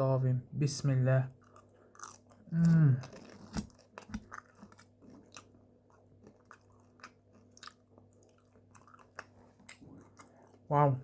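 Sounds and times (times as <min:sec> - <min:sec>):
person chewing food: 0:01.3 - 0:10.7.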